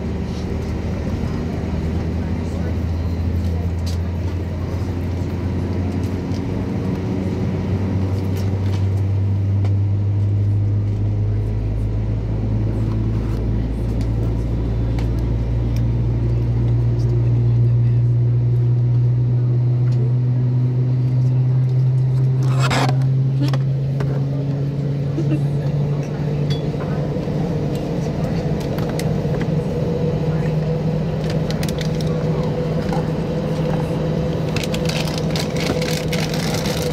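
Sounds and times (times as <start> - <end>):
jet engine spooling up: 26.0 - 36.9.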